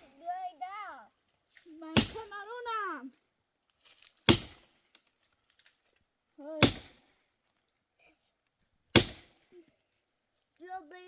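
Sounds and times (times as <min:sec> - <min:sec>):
axe chopping firewood: 0:01.9 - 0:02.6, 0:03.8 - 0:05.6, 0:06.6 - 0:07.2, 0:08.9 - 0:09.5.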